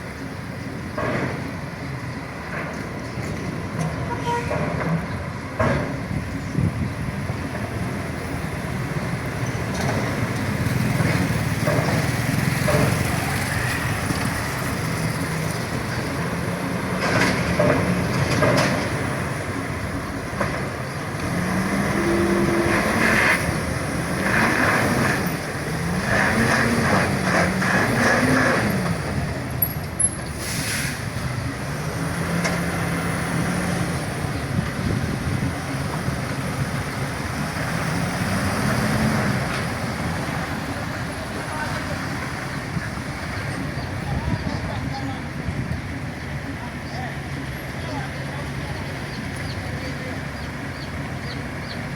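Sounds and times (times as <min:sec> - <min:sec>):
truck diesel engines revving: 0:00.0 - 0:51.9
short hiss: 0:30.3 - 0:31.1.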